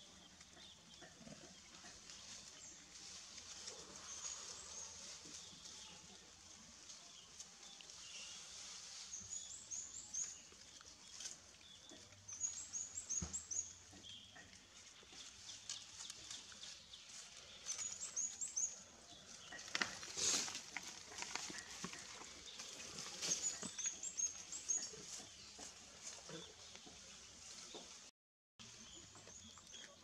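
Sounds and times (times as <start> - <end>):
dry leaves crackling and rustling: 19.3 - 23.8.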